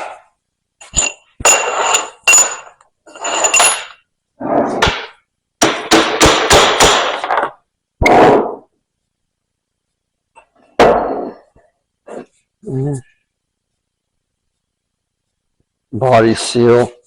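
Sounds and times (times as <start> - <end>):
hammer striking metal: 4.8 - 7.3.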